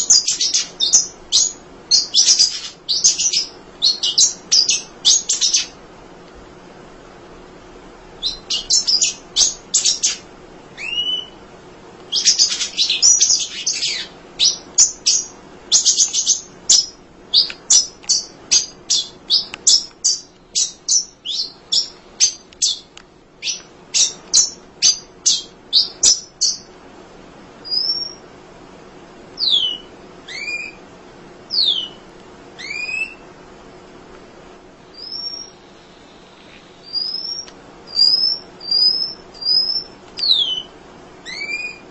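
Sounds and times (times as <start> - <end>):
bird chirping: 0.0 - 5.8, 8.2 - 10.2, 10.8 - 11.4, 12.1 - 26.7, 27.6 - 28.2, 29.4 - 30.8, 31.5 - 32.0, 32.6 - 33.2, 34.9 - 41.9
bird whistles sliding in pitch: 32.6 - 33.2.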